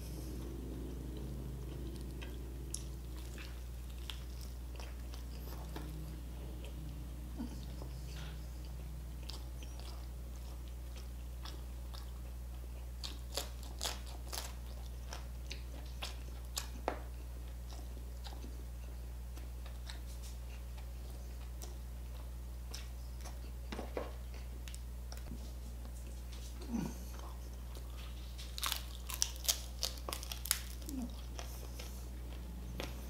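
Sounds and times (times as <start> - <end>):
low hum: 0.0 - 13.4
chewing crispy food: 0.0 - 33.0.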